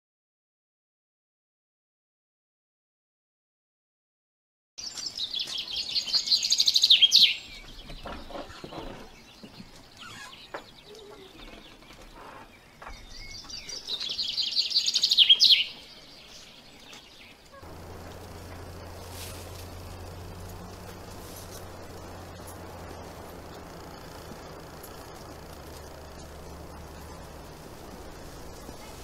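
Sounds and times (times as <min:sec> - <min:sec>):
songbird trilling: 0:04.8 - 0:07.7, 0:10.0 - 0:11.5, 0:12.8 - 0:16.4, 0:17.2 - 0:29.0
soft bird chirps: 0:04.8 - 0:29.0.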